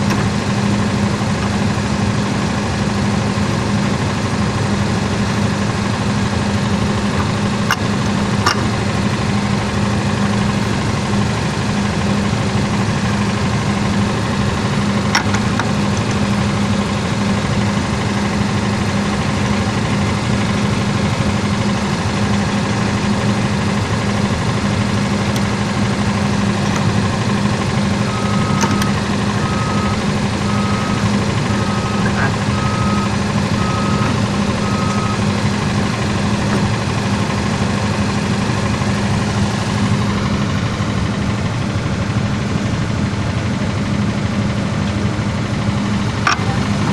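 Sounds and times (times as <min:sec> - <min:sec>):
engine humming steadily: 0:00.0 - 0:46.9
reversing beeper beeping: 0:27.9 - 0:35.4.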